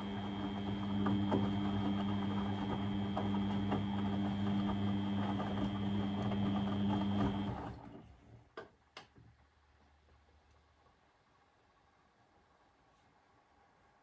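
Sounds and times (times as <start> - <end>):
washing machine humming: 0.0 - 8.6.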